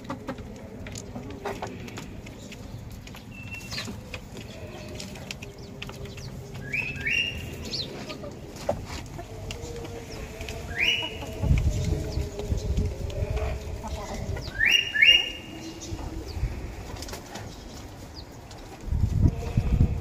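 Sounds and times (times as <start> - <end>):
high chirping bird calls: 3.1 - 8.2, 9.6 - 16.6
faint lower bird calls: 10.1 - 11.4, 13.4 - 16.6.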